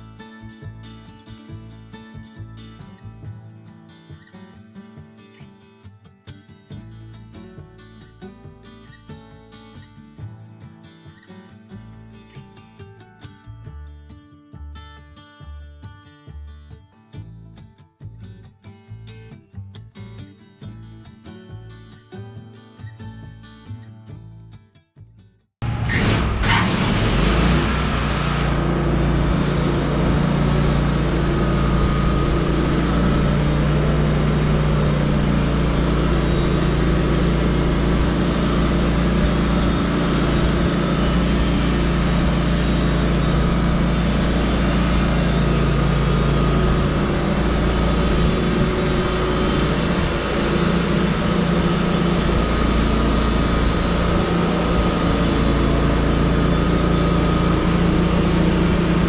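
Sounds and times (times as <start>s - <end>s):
heavy machine engine running: 25.6s - 59.0s.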